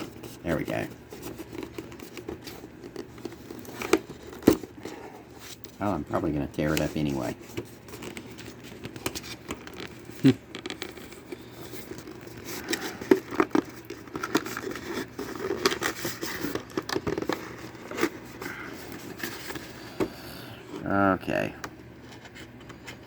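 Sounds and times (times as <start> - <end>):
cardboard box crinkling and tearing: 7.0 - 19.7.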